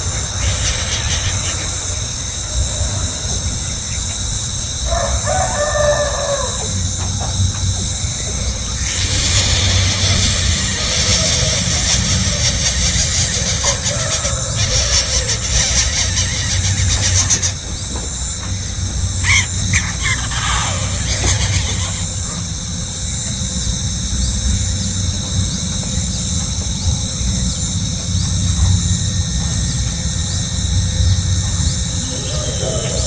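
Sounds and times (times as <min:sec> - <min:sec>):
high-pitched insect drone: 0:00.0 - 0:33.0
high calls: 0:08.0 - 0:22.8, 0:31.6 - 0:33.0.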